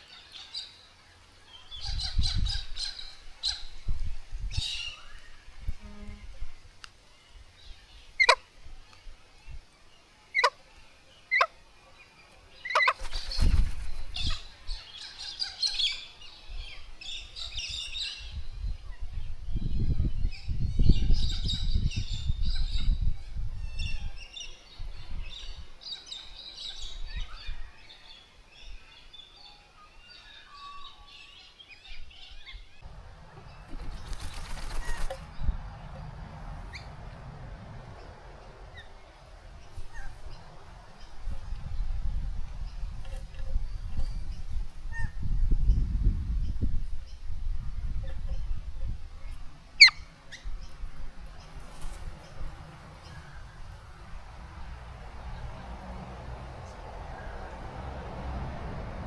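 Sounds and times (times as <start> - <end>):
wings flapping: 12.8 - 14.4, 33.1 - 37.2, 51.5 - 53.0.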